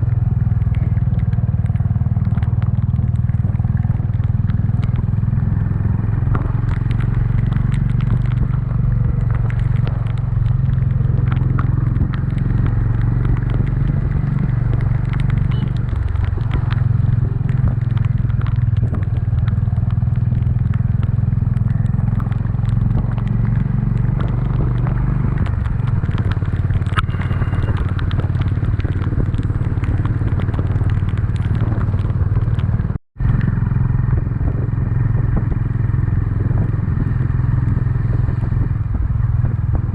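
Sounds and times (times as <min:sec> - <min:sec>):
motorcycle engine running: 0:00.0 - 0:39.9
faint crackles: 0:00.1 - 0:39.9.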